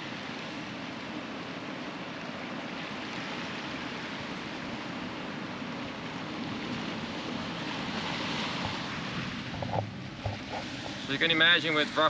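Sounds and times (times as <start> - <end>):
surf: 0.0 - 12.0
tyre and wind noise: 6.4 - 11.2.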